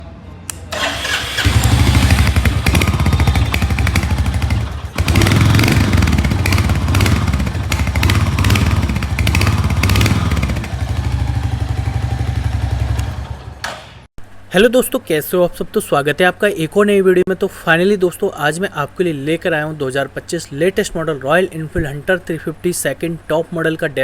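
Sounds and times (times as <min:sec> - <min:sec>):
motorcycle engine running: 0:01.3 - 0:13.6.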